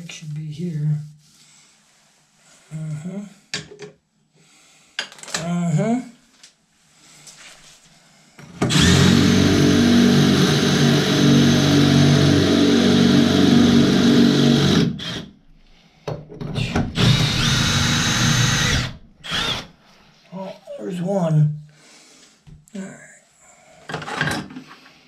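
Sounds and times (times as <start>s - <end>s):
electric drill running: 8.6s - 15.3s, 16.6s - 19.7s.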